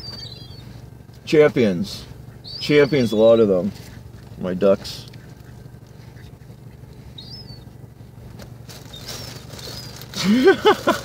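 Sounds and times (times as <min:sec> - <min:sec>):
high bird chirps: 0:00.0 - 0:00.8, 0:02.2 - 0:04.2, 0:05.7 - 0:07.8, 0:08.9 - 0:10.1
car engine idling: 0:00.0 - 0:11.0.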